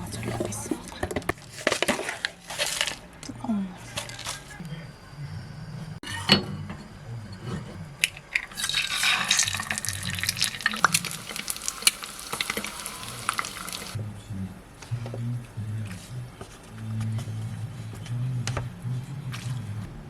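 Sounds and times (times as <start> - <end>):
hot water pouring into a cup: 8.4 - 14.0.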